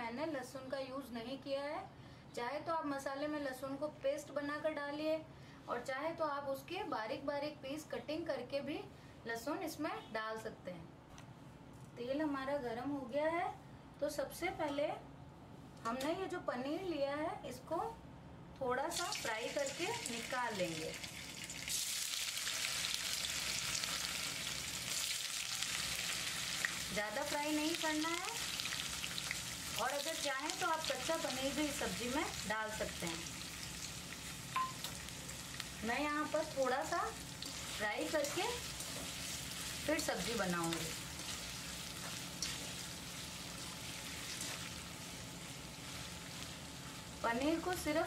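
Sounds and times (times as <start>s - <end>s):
cheese frying in hot oil: 18.9s - 48.0s.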